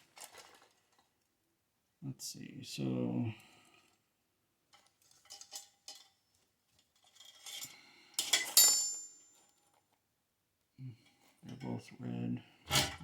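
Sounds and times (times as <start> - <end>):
ringing metal clink: 8.4 - 9.3.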